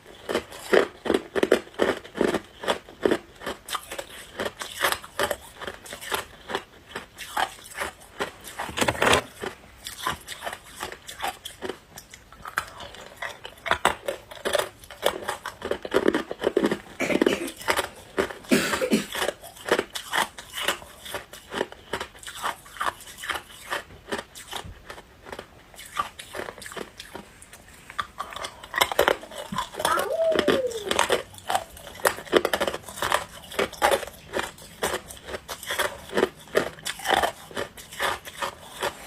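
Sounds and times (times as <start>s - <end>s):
person chewing ice: 0.0s - 39.0s.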